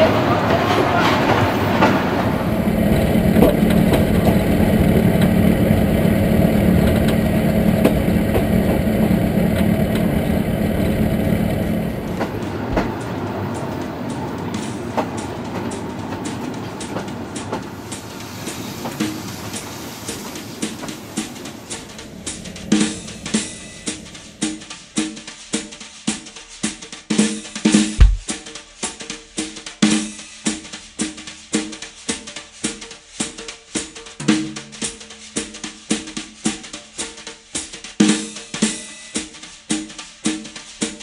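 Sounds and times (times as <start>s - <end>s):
wheels clicking over rail joints: 0.0s - 24.9s
train wheels rumbling on rails: 0.0s - 25.1s, 28.0s - 28.3s.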